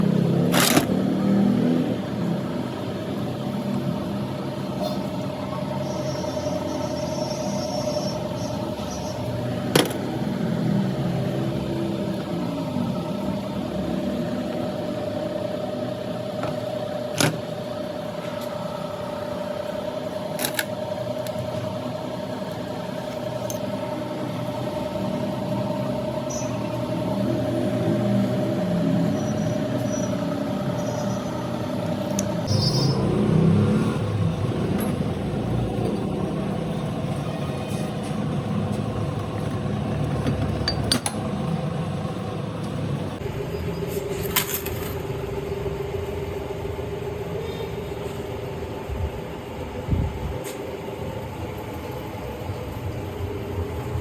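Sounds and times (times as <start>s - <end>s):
rumble of passing vehicles: 0.0s - 54.0s
steady hum: 1.5s - 44.1s.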